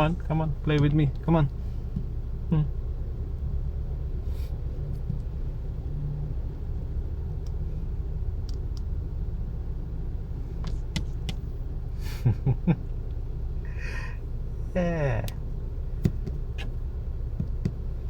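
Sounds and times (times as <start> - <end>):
car idling rumble: 0.0 - 18.0
light taps and clicks: 0.7 - 2.1, 4.9 - 5.4, 10.6 - 11.5, 16.0 - 17.9.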